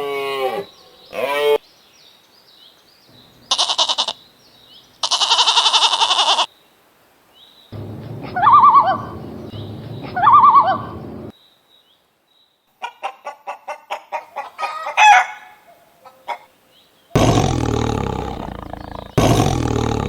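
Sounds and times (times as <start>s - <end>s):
chicken calls: 3.3s - 4.3s, 4.9s - 6.5s, 8.2s - 11.2s, 12.8s - 16.5s
chicken clucking and squawking: 9.8s - 11.0s, 12.8s - 16.5s.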